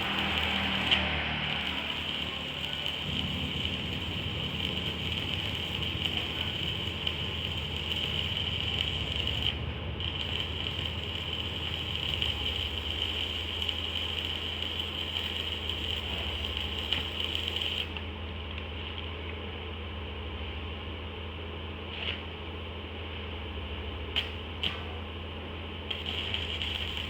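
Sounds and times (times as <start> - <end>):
machine high whine: 0.0 - 18.0
press machine low hum: 0.0 - 27.0.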